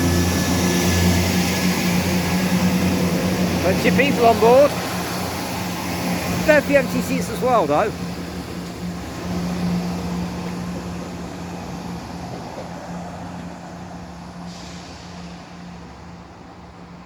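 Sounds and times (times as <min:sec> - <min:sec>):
diesel train engine drone: 0:00.0 - 0:17.0.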